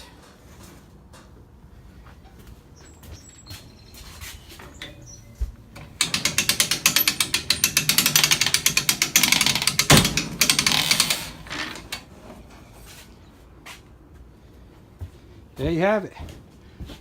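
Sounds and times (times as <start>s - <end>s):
winch ratchet clicking: 4.7s - 12.1s.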